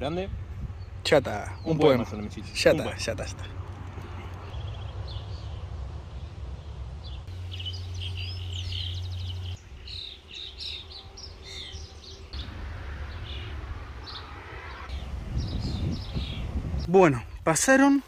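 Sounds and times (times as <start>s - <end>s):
small birds chirping: 0.6s - 18.0s
low background rumble: 3.4s - 9.7s.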